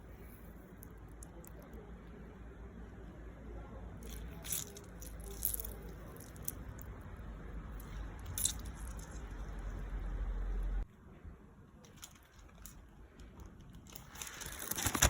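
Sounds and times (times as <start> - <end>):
food crunching and squishing: 4.0 - 6.9, 7.8 - 9.9, 11.9 - 15.0.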